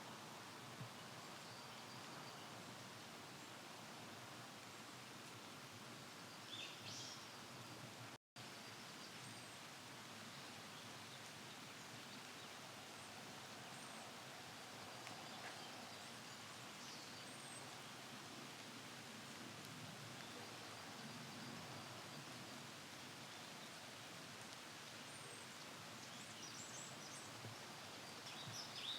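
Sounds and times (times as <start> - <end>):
steady background hiss: 0.0 - 28.9.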